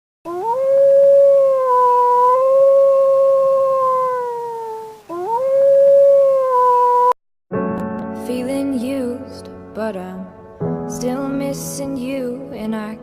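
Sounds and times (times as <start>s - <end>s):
wolf howling: 0.3s - 7.2s.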